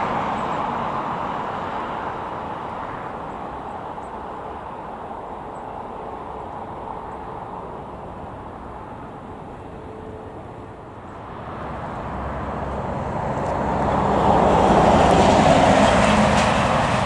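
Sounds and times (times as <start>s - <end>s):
jet engine rushing: 11.1s - 17.0s.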